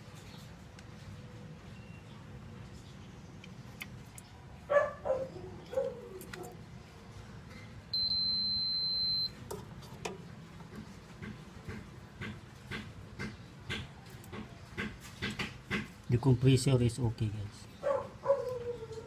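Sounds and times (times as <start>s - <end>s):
light clicks and handling noise: 5.6s - 6.6s
high-pitched electronic beep: 8.0s - 9.3s.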